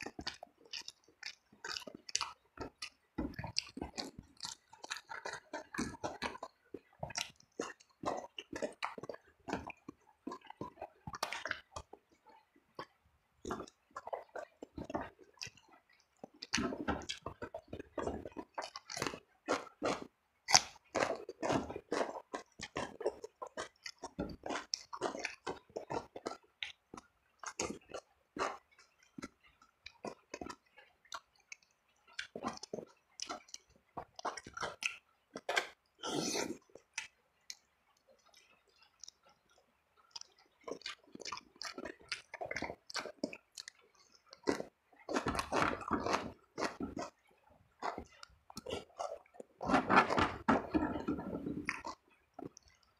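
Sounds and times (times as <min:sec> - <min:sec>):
wet mouth clicks: 0:00.0 - 0:47.2, 0:47.8 - 0:52.9
close chewing and crunching: 0:00.0 - 0:52.9.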